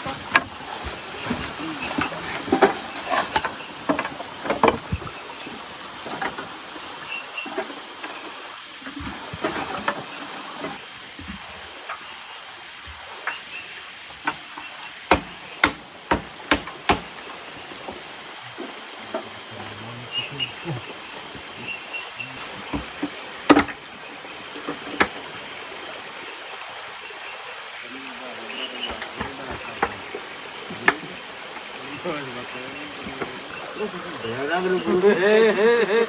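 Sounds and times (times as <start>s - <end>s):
steady hiss: 0.0s - 36.0s
sharp knocks: 14.2s - 18.0s, 22.6s - 23.8s.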